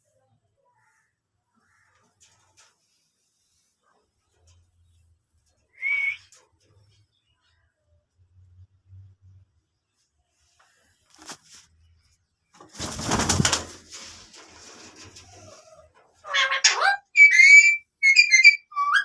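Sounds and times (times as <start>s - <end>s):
noisy rustle: 10.3s - 15.6s.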